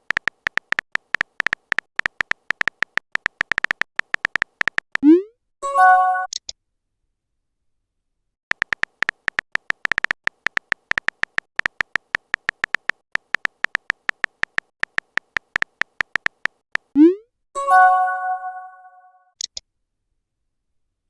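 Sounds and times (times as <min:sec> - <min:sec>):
phone keyboard tapping clicks: 0:00.0 - 0:05.0, 0:08.5 - 0:16.9
message notification chime: 0:17.0 - 0:19.1.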